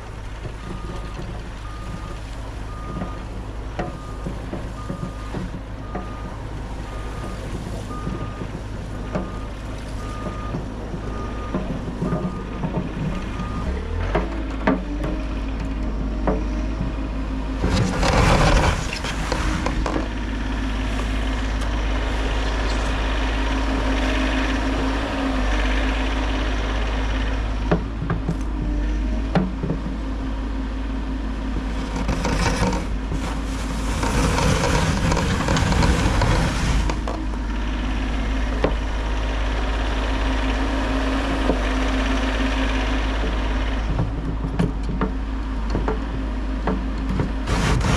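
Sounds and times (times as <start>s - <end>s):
excavator diesel engine running: 0.0s - 47.9s
rushing scraping noise: 17.6s - 20.1s, 31.6s - 37.3s, 47.4s - 47.9s.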